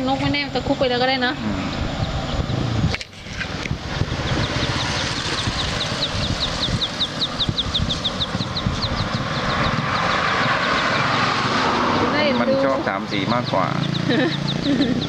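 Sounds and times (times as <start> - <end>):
steady low rumble: 0.0 - 15.0
chick peeping: 3.6 - 11.2, 12.0 - 15.0.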